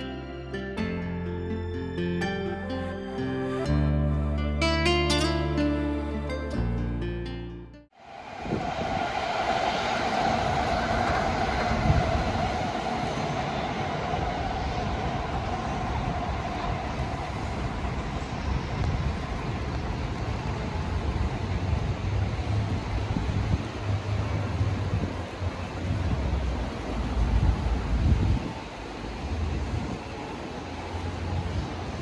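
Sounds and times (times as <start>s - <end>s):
electric train whine: 0.0s - 7.1s, 7.9s - 32.0s
wheels rumbling on rails: 8.0s - 32.0s.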